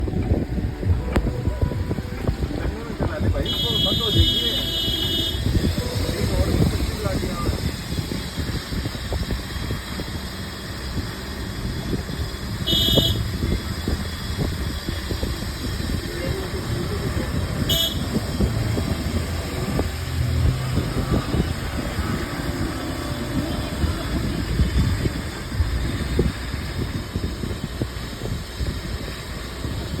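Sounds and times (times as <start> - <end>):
road traffic rumble: 0.0 - 30.0
high-pitched horn toots: 3.4 - 6.0, 12.6 - 13.5, 17.5 - 22.7.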